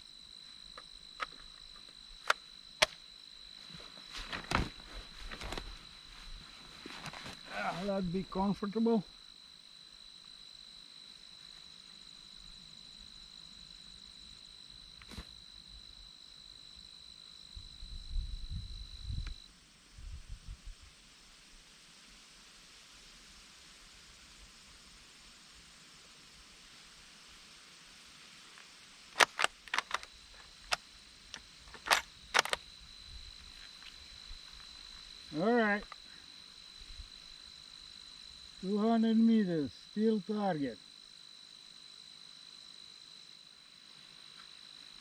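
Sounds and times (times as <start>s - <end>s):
insect trilling: 0.0s - 19.5s, 26.7s - 45.0s
faint high whine: 0.0s - 45.0s
rifle bolt metallic clicks: 29.2s - 30.1s, 31.7s - 32.6s.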